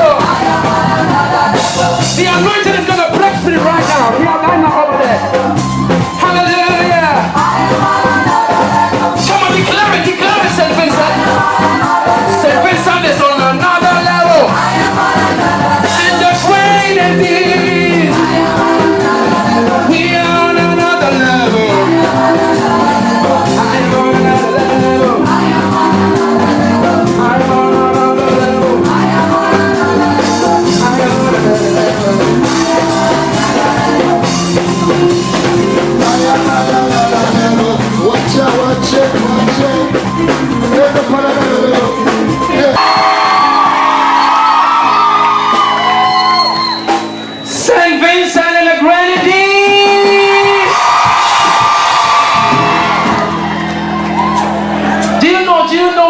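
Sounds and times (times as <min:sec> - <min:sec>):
person singing: 0:00.0 - 0:44.0
live gospel band music: 0:00.0 - 0:56.0.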